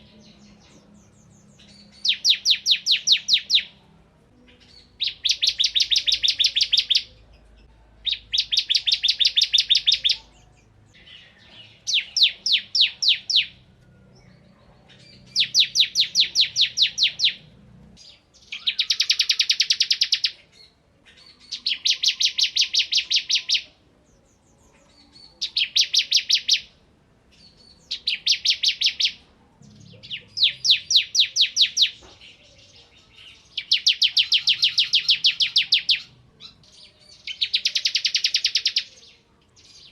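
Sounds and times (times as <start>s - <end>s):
bird singing rattling trills: 27.4s - 39.0s.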